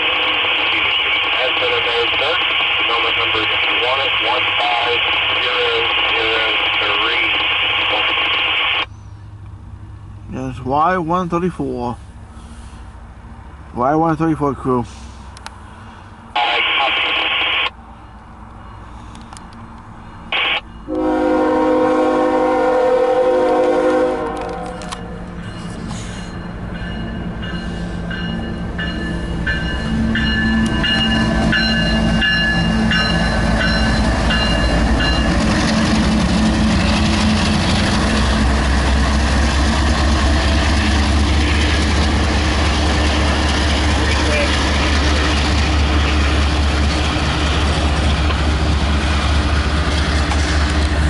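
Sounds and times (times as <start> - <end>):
diesel locomotive engines rumbling: 0.0 - 51.0
locomotive horn blast: 20.4 - 25.0.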